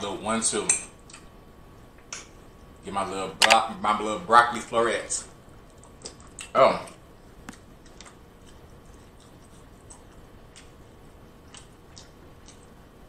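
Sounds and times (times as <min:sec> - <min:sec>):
faint chewing: 0:05.6 - 0:13.0.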